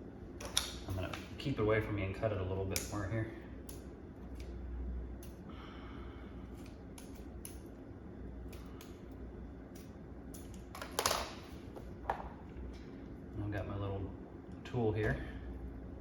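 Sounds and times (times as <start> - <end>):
scissors snipping hair: 5.2 - 5.4, 6.6 - 7.7, 8.4 - 9.0, 9.7 - 10.7.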